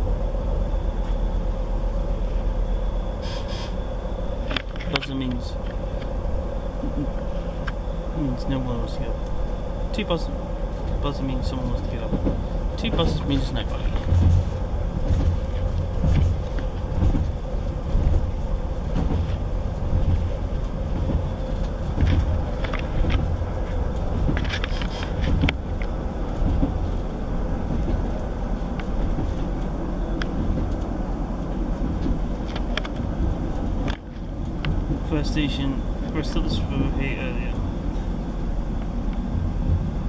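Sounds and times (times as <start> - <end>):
diesel engine rumble: 0.0 - 40.0
steady hum: 0.0 - 40.0
train wheels on rails: 0.0 - 40.0
sharp clicks and rattles: 10.8 - 26.8, 28.8 - 35.6.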